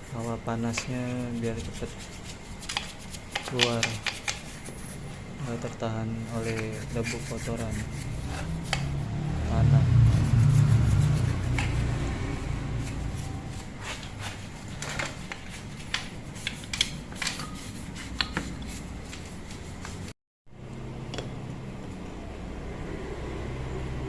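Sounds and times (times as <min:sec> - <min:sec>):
low hum: 0:04.5 - 0:14.2.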